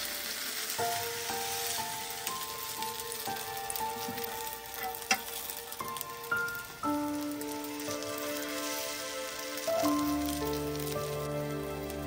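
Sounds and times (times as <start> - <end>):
bread sizzling in a pan: 0.0 - 12.0
utensil clinking on a pan: 1.8 - 6.7.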